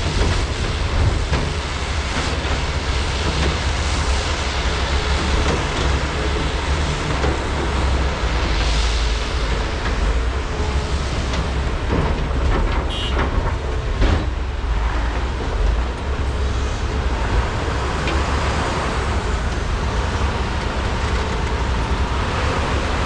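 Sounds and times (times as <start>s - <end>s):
excavator diesel engines rumbling: 0.0s - 23.0s.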